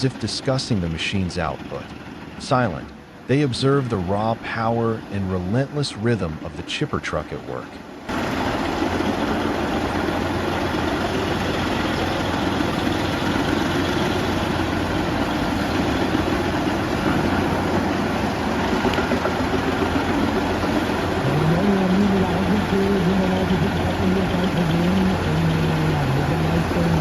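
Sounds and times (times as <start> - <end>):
wood chipper droning: 7.7 - 27.0.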